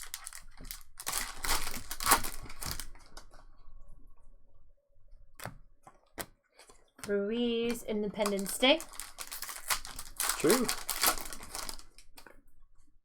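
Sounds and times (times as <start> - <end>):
wrapper tearing and crinkling: 0.0 - 3.3, 8.2 - 12.3.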